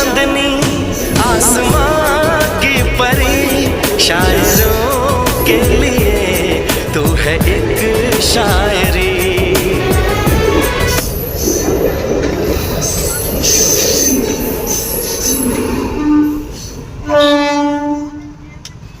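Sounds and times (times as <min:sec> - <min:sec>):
train running on track: 0:00.0 - 0:19.0
train horn: 0:15.9 - 0:18.5.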